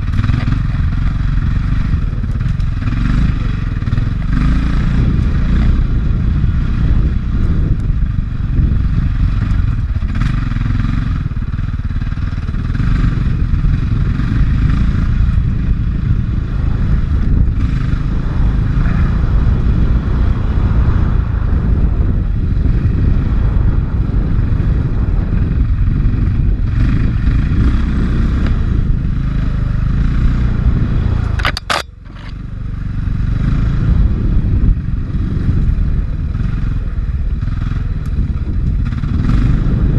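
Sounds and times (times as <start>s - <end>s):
dirt bike engine running: 0.0s - 39.9s
sharp high-pitched click: 31.2s - 32.4s.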